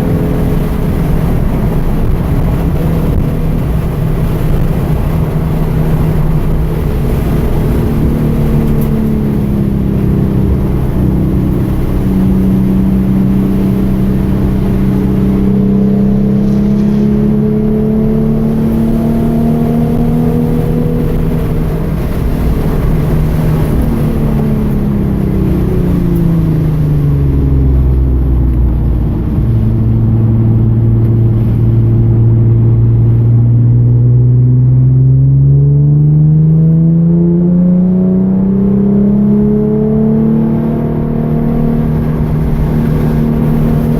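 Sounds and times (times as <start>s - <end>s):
car engine revving under load: 0.0s - 43.9s.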